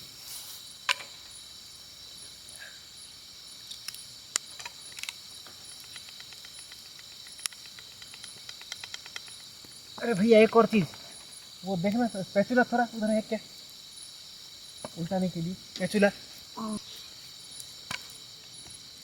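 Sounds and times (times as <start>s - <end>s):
crickets chirring: 0.0s - 19.0s
sharp clicks: 3.7s - 9.8s.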